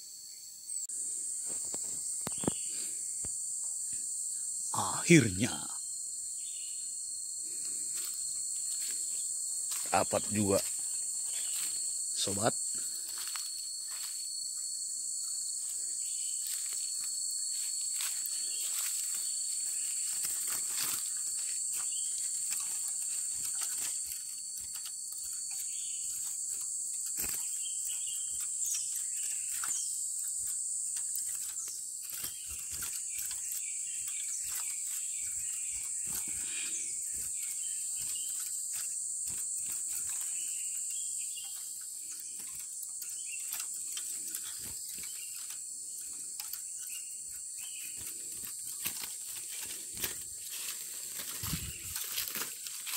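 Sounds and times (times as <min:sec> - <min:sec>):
high-pitched insect chorus: 0:00.0 - 0:52.9.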